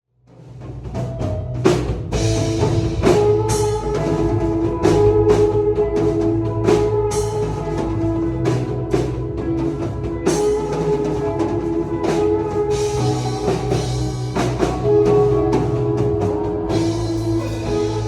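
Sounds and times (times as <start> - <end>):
drum kit with cymbal hits: 0.3 - 18.0
bass line: 0.8 - 18.0
held chords: 0.8 - 18.0.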